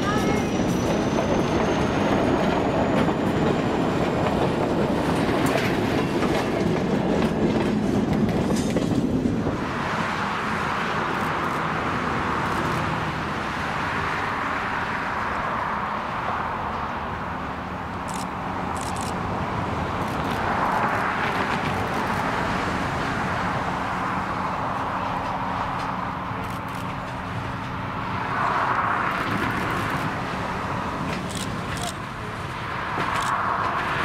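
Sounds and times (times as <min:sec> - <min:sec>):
distant approaching train noise: 0:00.0 - 0:34.0
train wheels clattering over rail joints: 0:00.6 - 0:09.4.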